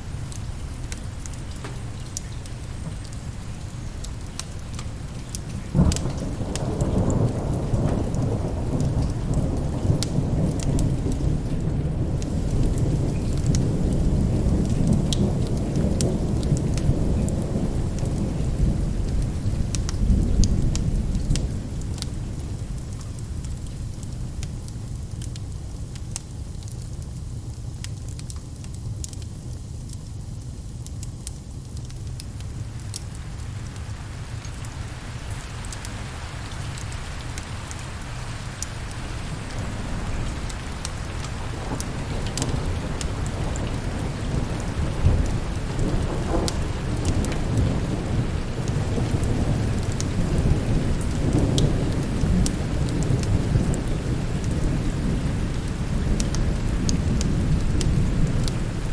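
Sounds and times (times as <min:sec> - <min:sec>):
rolling thunder: 0:00.0 - 0:22.9, 0:34.0 - 0:58.9
steady rain: 0:00.0 - 0:58.9
sharp ticks and crackles: 0:00.3 - 0:11.3, 0:12.2 - 0:34.6, 0:36.7 - 0:47.9.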